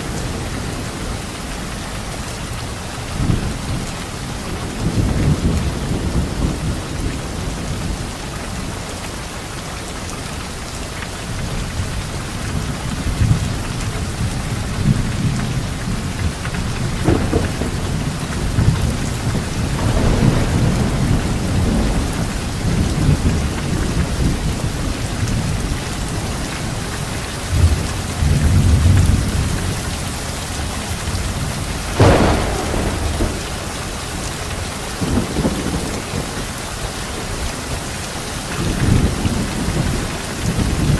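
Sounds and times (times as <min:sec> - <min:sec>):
heavy rain: 0:00.0 - 0:40.9
thunder rumbling: 0:03.2 - 0:08.6, 0:11.2 - 0:38.0.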